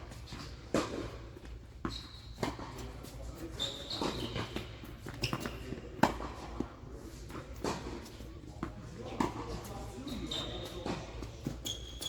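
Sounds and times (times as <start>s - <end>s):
shoes squeaking on court: 0.1s - 6.3s, 9.6s - 12.0s
tennis ball bouncing on court: 5.0s - 6.3s.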